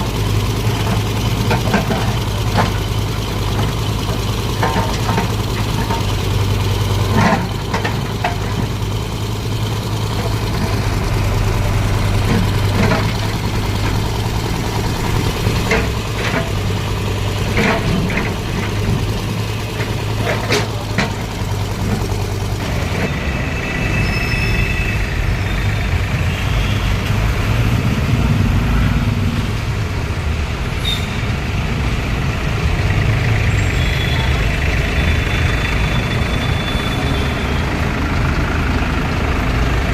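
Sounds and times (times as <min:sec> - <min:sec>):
heavy vehicle engine idling: 0:00.0 - 0:39.9
road traffic: 0:00.0 - 0:39.9
knocks and clatters: 0:00.5 - 0:23.2.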